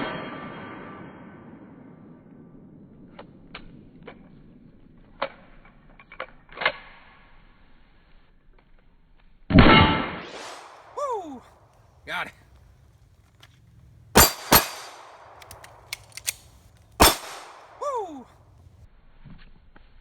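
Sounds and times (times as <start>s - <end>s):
pistol shot: 14.2s - 16.4s, 17.0s - 18.2s.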